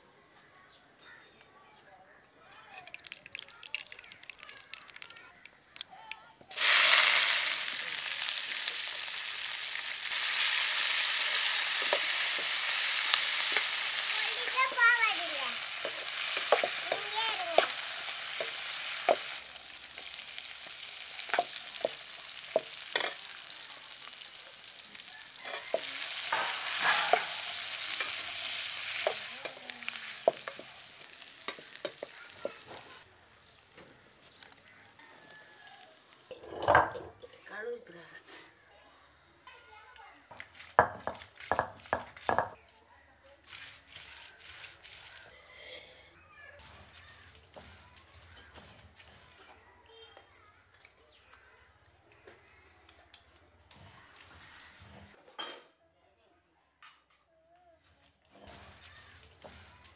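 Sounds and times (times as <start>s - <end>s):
stems sizzling in hot oil: 2.4s - 36.4s, 40.3s - 42.6s, 43.4s - 49.6s, 53.1s - 55.2s, 58.4s - 59.9s
ladle clinking and scraping pan: 10.0s - 14.6s, 15.2s - 24.1s, 25.0s - 33.0s, 45.3s - 46.2s.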